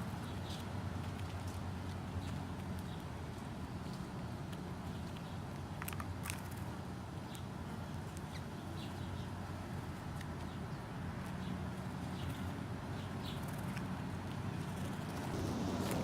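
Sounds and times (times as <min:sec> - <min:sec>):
steady low hum: 0:15.2 - 0:16.0.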